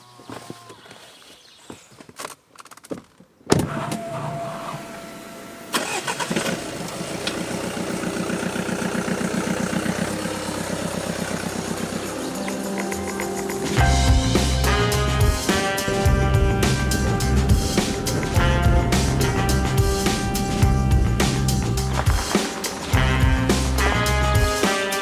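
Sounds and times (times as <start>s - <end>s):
car engine starting and idling: 3.8s - 14.7s, 16.4s - 22.4s.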